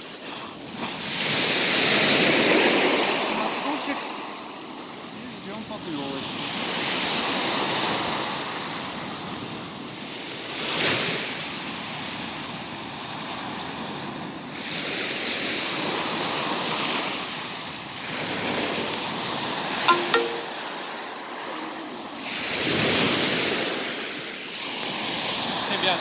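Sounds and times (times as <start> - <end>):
waves breaking on shore: 0.0 - 12.4, 22.9 - 26.0.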